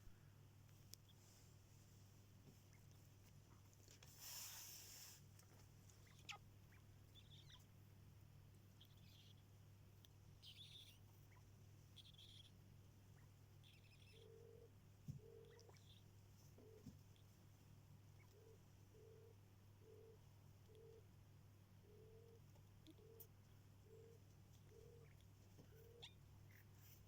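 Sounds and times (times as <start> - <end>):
faint low hum: 0.0 - 27.0
rustle: 0.7 - 6.0
quail peeping: 2.6 - 3.1, 5.9 - 7.8, 8.5 - 17.4, 18.0 - 21.1, 21.8 - 27.0.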